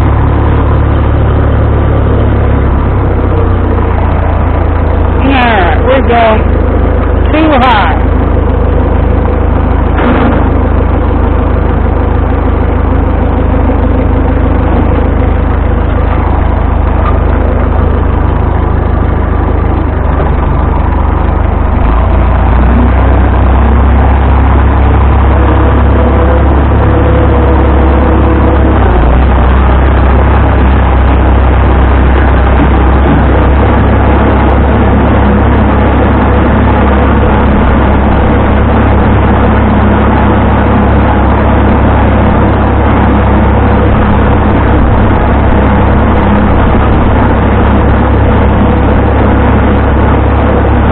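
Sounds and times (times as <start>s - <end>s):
tractor engine droning: 0.0s - 50.9s.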